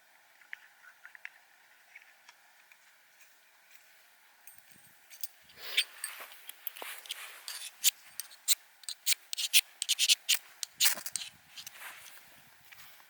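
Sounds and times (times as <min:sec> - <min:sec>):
short sharp scraping strokes: 0:07.0 - 0:12.2.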